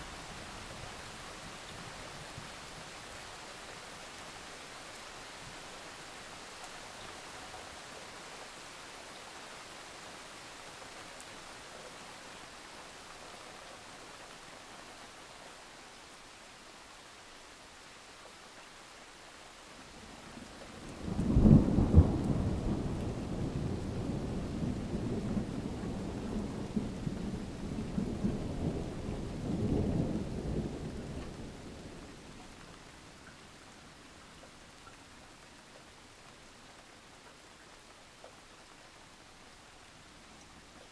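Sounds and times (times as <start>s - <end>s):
steady rain hiss: 0.0s - 40.9s
low roll of thunder: 20.4s - 32.3s.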